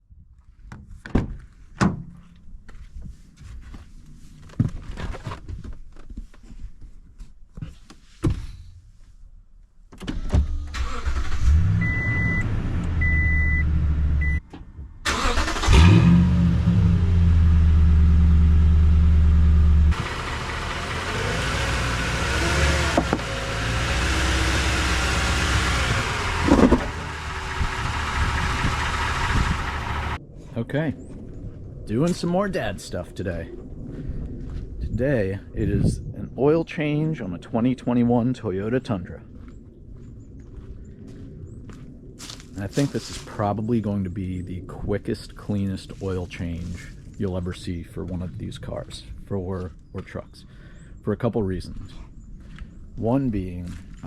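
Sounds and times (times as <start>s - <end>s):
car engine starting and idling: 10.0s - 30.2s.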